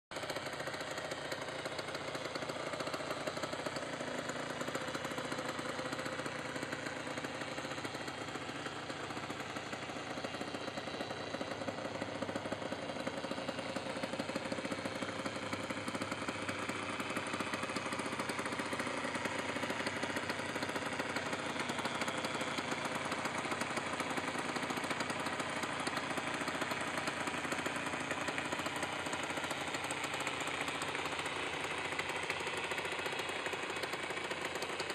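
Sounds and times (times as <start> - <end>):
two-stroke motorcycle engine running: 0.1 - 34.9.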